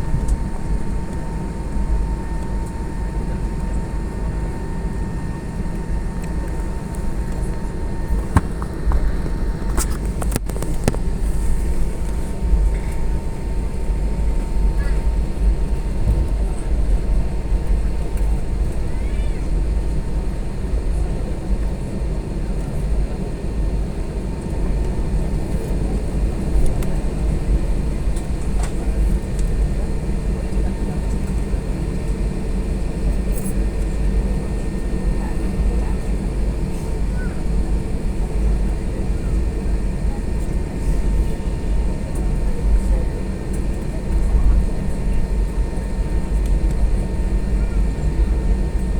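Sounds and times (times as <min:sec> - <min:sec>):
aircraft cabin deep rumble: 0:00.0 - 0:48.9
faint constant hum: 0:00.0 - 0:48.9.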